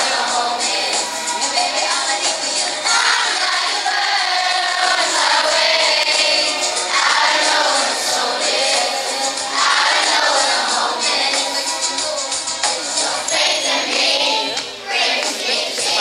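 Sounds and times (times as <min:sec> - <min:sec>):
children singing together: 0:00.0 - 0:16.0
music: 0:00.0 - 0:16.0.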